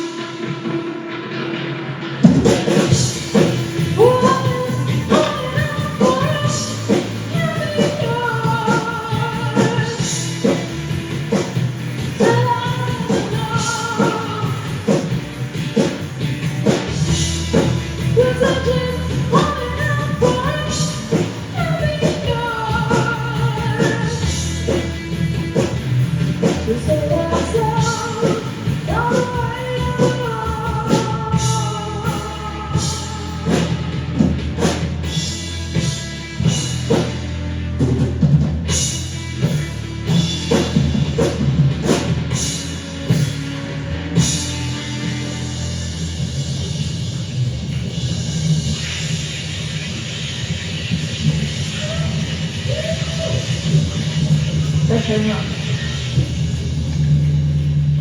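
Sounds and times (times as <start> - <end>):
live rock band playing: 0.0 - 58.0
drum kit beat: 2.2 - 58.0
person singing: 4.0 - 10.1, 26.7 - 34.2.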